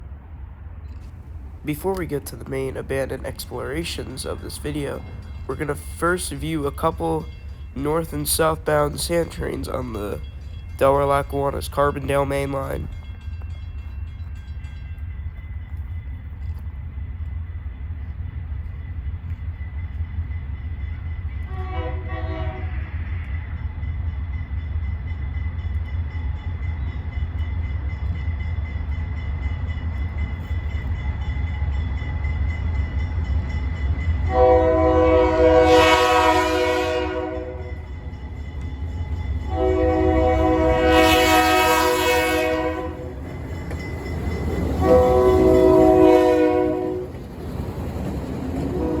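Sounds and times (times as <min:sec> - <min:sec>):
locomotive engine rumble: 0:00.0 - 0:49.0
locomotive air horn: 0:21.5 - 0:23.0, 0:34.3 - 0:37.8, 0:39.5 - 0:43.2, 0:44.8 - 0:47.1, 0:48.7 - 0:49.0.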